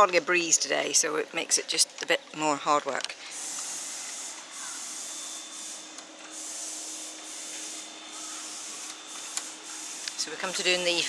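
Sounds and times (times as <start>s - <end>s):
power polisher whirring: 3.2s - 11.0s.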